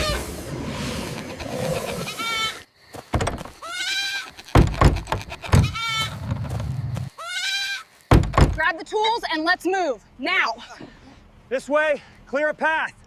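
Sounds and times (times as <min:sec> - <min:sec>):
fawn bleating: 0:01.2 - 0:02.6, 0:03.6 - 0:06.2, 0:07.2 - 0:07.9
dull thuds: 0:03.0 - 0:03.6, 0:04.5 - 0:07.1, 0:08.1 - 0:08.7.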